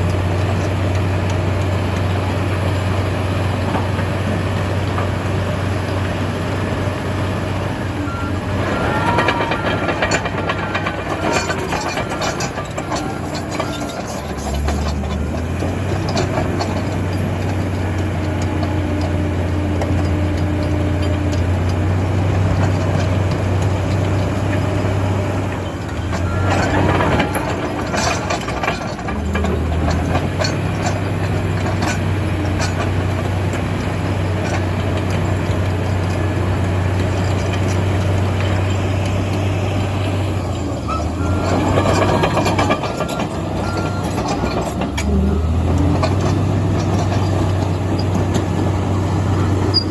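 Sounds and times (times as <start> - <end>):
diesel engine droning: 0.0 - 49.9
metallic clattering: 8.5 - 18.0.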